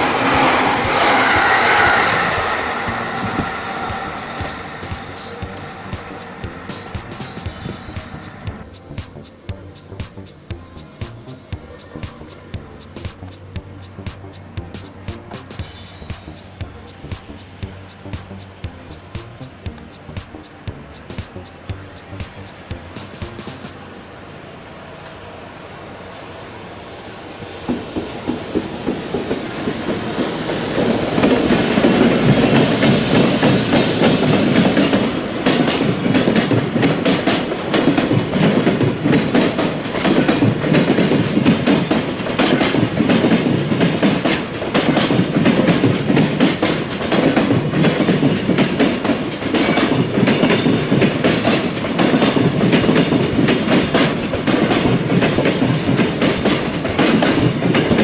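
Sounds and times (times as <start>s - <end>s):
freight train rumble: 0.0s - 58.0s
clickety-clack of wheels: 27.6s - 58.0s.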